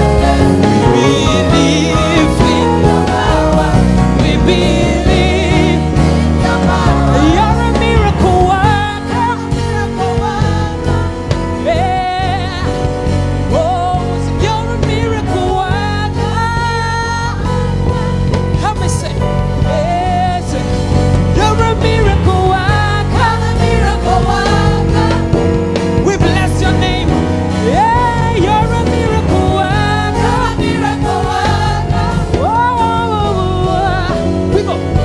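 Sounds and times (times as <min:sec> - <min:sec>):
wavering vocal runs: 0:00.0 - 0:12.8
sustained instrumental accompaniment: 0:00.0 - 0:35.0.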